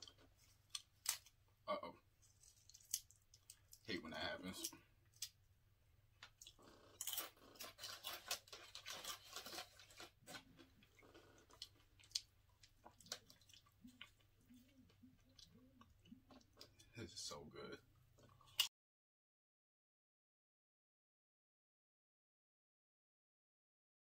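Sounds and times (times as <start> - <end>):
chips crackling on a plate: 2.2 - 3.8, 6.3 - 14.2
crunching of chips being chewed: 2.2 - 3.9, 6.2 - 16.9.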